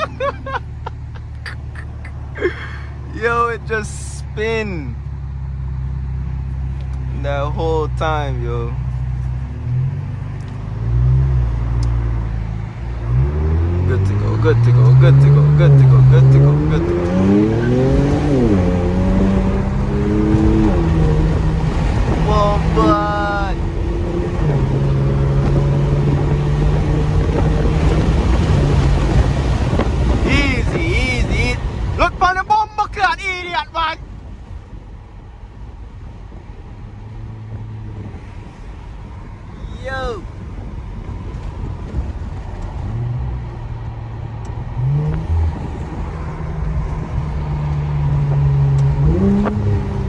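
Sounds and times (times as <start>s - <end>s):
loud car exhaust droning: 0.0s - 50.0s
wind noise: 8.8s - 50.0s.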